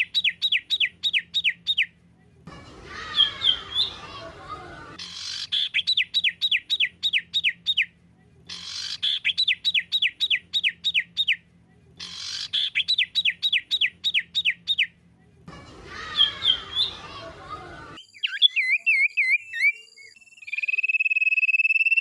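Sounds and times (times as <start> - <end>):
songbird whistled notes: 15.8 - 22.0.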